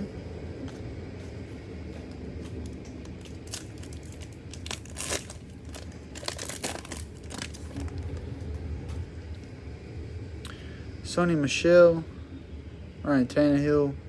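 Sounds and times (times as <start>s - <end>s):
cellophane wrapper tearing and crinkling: 3.1s - 8.3s.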